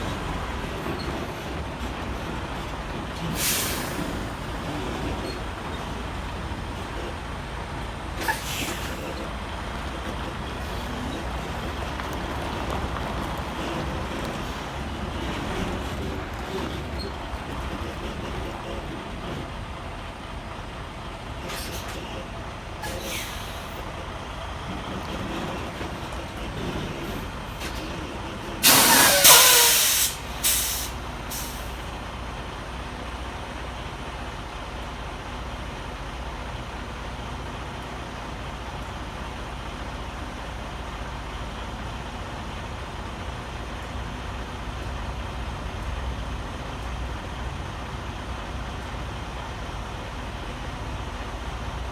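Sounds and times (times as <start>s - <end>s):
diesel engine rumbling: 0.0s - 51.9s
air brakes hissing: 3.2s - 7.1s, 8.2s - 9.4s, 21.4s - 24.0s, 25.1s - 31.9s
short puffs of air: 28.6s - 31.8s.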